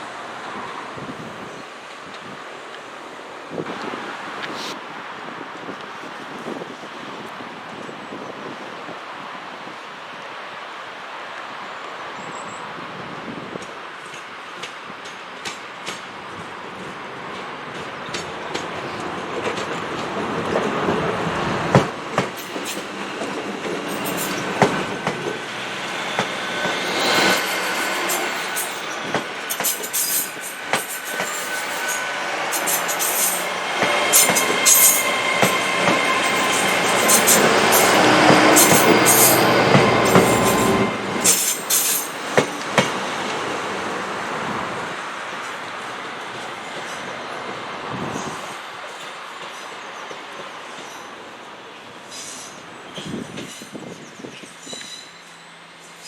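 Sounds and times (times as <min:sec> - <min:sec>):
train wheels clicking over rail joints: 0:13.6 - 0:21.1, 0:21.7 - 0:43.5
high wheel squeal: 0:23.9 - 0:42.7, 0:52.1 - 0:56.0
sharp clacks: 0:32.6 - 0:43.0.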